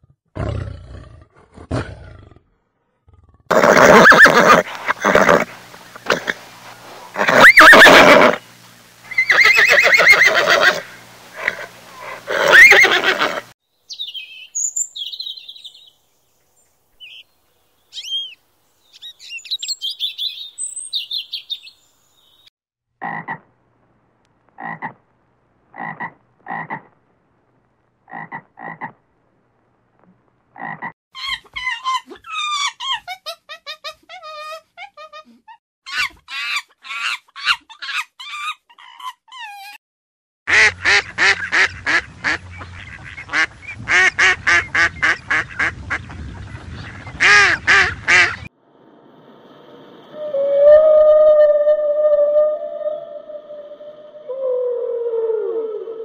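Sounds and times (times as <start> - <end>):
pony calling: 3.5 - 6.4, 7.1 - 8.4, 9.1 - 13.5
high quavering calls: 7.1 - 8.4, 9.0 - 13.5
bird high chirps: 13.9 - 16.0, 17.0 - 22.5
short croaks: 24.5 - 25.1.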